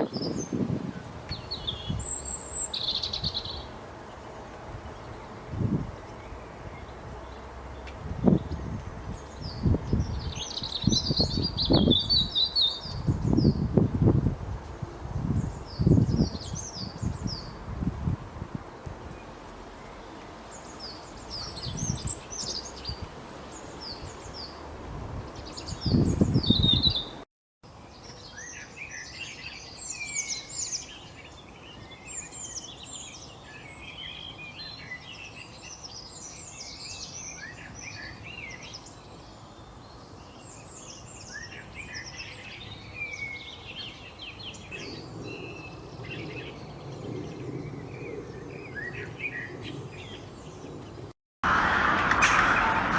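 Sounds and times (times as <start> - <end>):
small birds chirping: 0.0 - 13.8, 19.0 - 24.6, 25.3 - 51.1
low rumbling noise: 51.4 - 52.9.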